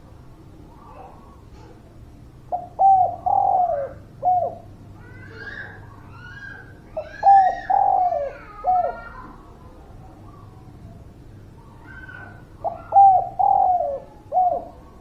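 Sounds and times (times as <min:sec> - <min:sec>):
dove cooing: 0:02.5 - 0:09.4, 0:11.6 - 0:15.0.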